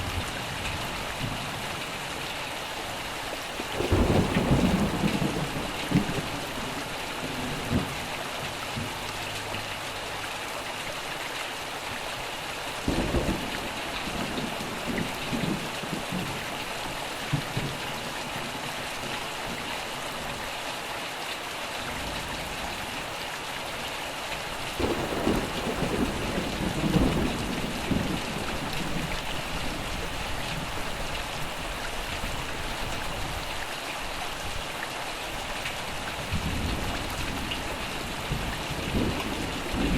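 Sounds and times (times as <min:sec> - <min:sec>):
steady rain hiss: 0:00.0 - 0:39.9
thunder rumbling: 0:03.6 - 0:08.0, 0:12.8 - 0:16.5, 0:24.8 - 0:30.8, 0:36.2 - 0:39.9.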